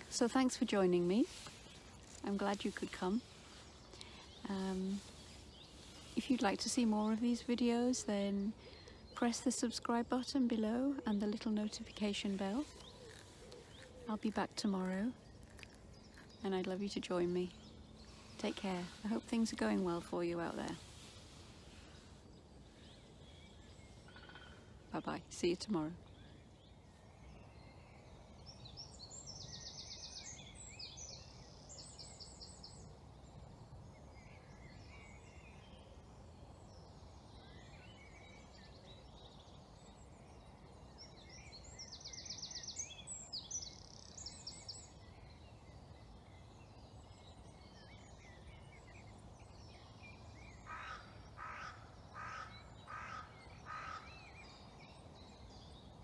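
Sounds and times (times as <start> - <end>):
crow cawing: 50.7 - 54.0.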